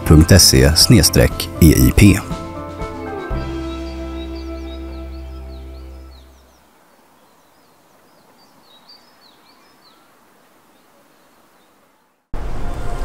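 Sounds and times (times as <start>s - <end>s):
background music: 0.0s - 6.4s
small birds chirping: 1.2s - 12.3s.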